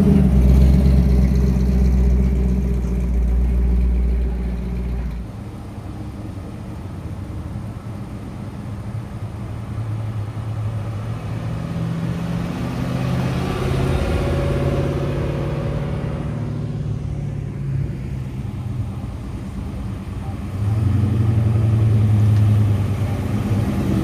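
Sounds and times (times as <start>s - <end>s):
car driving past: 10.4s - 24.0s.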